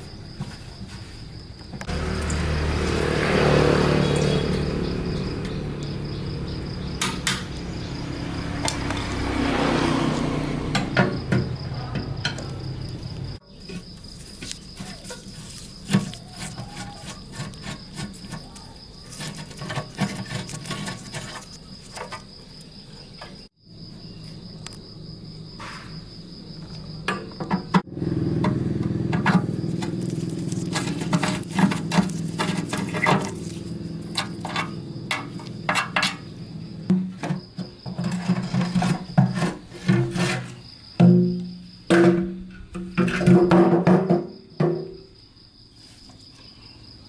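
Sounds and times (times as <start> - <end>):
crickets chirping: 0.0 - 47.0
power tool grinding: 1.9 - 6.8, 27.8 - 40.6
clicks and knocks on metal: 27.0 - 30.0, 34.1 - 36.3.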